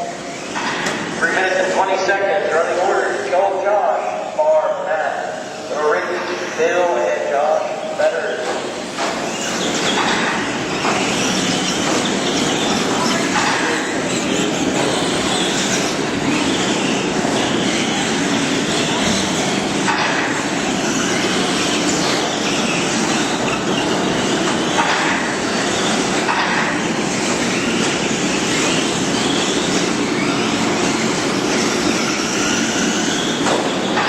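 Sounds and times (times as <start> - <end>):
toy truck motors whining: 10.6 - 19.8, 20.4 - 24.8, 26.8 - 33.8.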